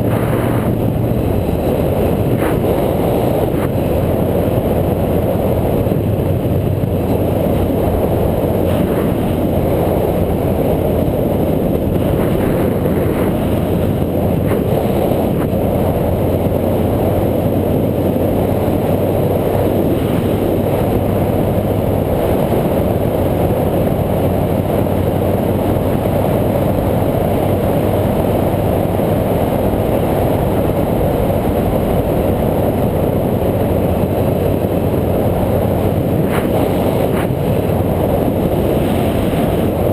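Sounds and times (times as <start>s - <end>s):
road noise: 0.0s - 39.9s
wind buffeting microphone: 0.0s - 39.9s.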